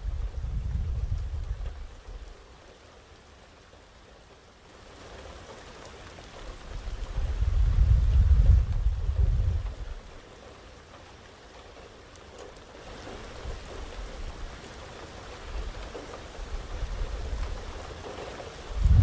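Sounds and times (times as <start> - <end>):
low thunder rumble: 0.0 - 2.0, 6.7 - 10.0, 18.6 - 19.0
steady rain hissing: 0.0 - 19.0.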